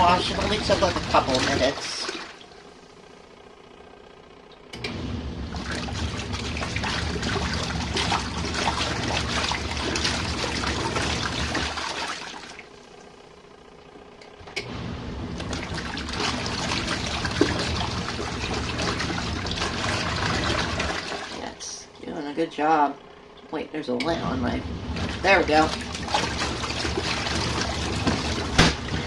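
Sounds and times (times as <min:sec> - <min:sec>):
water sloshing in tub: 0:00.0 - 0:03.1, 0:05.4 - 0:13.3, 0:15.2 - 0:22.2, 0:24.4 - 0:29.0
washing machine motor hum: 0:00.0 - 0:29.0.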